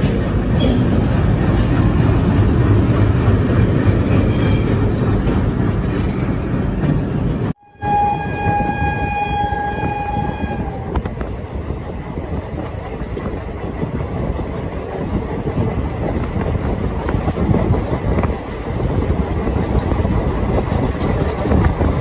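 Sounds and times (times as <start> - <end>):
moving train rumble and rattle: 0.0 - 22.0
train horn: 7.6 - 11.1.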